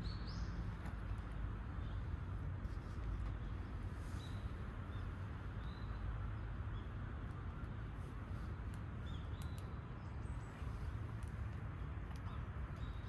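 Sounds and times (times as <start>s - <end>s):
birds chirping: 0.0s - 13.0s
light clicks: 8.6s - 9.8s.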